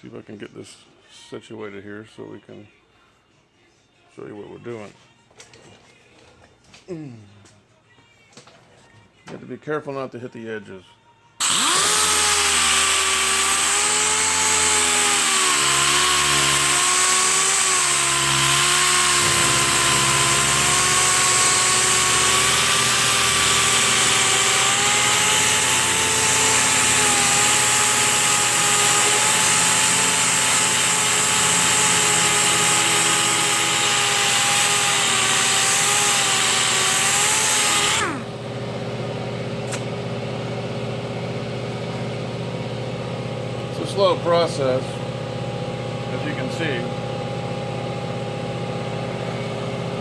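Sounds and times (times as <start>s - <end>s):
power sander sanding metal: 11.4s - 38.3s, 43.7s - 50.0s.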